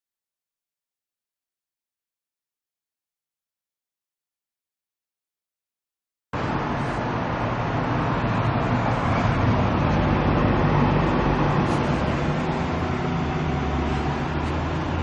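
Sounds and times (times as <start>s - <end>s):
vehicle engine running: 6.4s - 15.0s.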